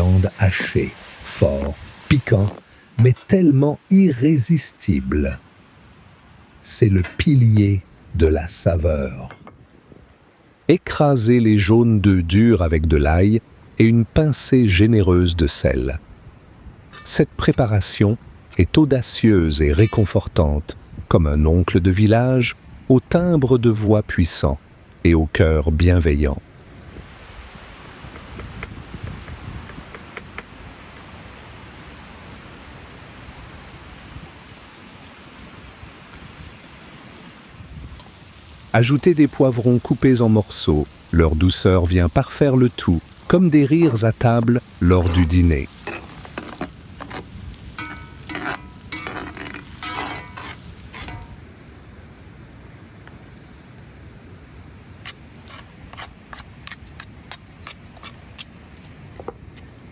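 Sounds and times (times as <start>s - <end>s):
utensils tapping: 47.8s - 51.4s.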